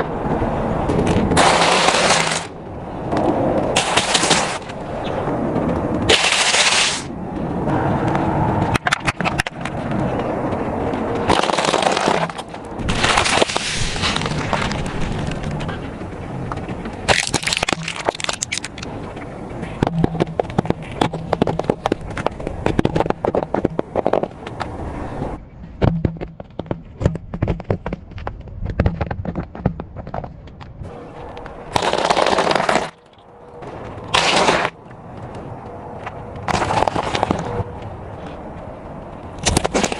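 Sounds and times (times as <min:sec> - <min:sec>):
tyre crushing brittle objects: 0:17.1 - 0:18.9.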